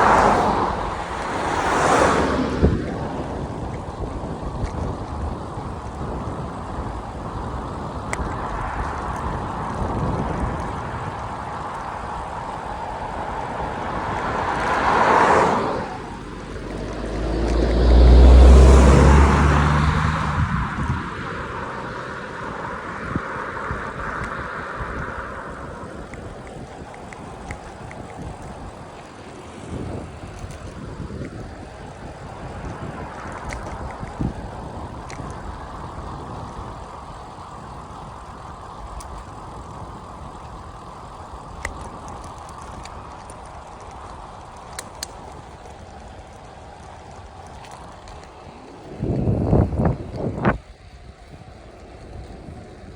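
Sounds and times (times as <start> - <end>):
vehicle passing by: 0.0 - 4.2, 7.8 - 28.8
bicycle road noise: 0.0 - 52.9
wind noise: 0.0 - 52.9
wind rushing: 6.1 - 26.6
faint clicks: 8.0 - 10.8, 23.7 - 29.2, 32.6 - 52.9.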